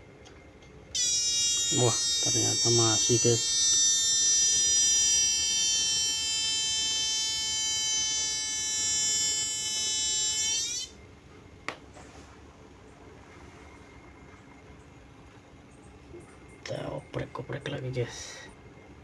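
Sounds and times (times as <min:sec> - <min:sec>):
power supply high-pitched whistle: 0:00.9 - 0:11.1.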